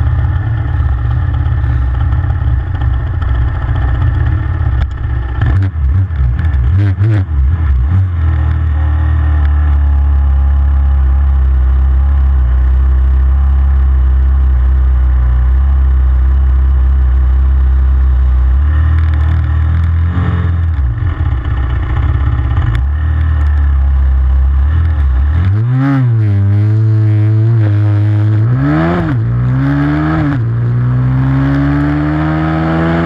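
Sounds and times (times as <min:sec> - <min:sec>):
motorbike engine revving: 0:00.0 - 0:10.0, 0:18.6 - 0:33.0.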